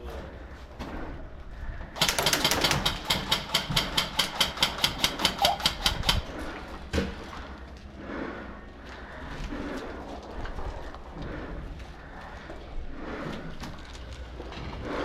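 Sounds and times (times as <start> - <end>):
airsoft gun rapid fire: 2.0 - 6.4.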